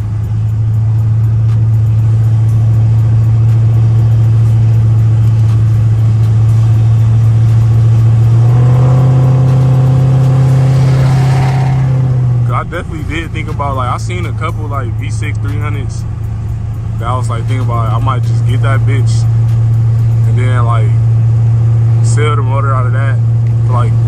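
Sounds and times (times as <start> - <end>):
car engine droning inside cabin: 0.0 - 24.0.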